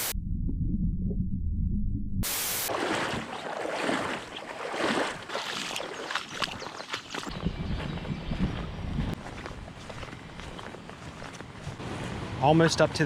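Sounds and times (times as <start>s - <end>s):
muffled water sound: 0.0s - 9.2s
water splash: 2.3s - 7.3s
rushing river water: 2.7s - 7.3s.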